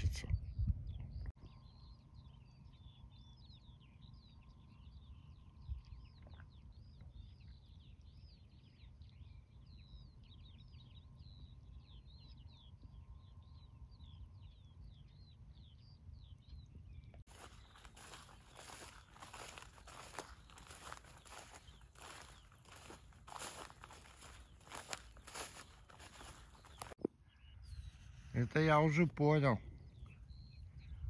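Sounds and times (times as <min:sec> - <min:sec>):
small birds chirping: 0:00.1 - 0:31.0.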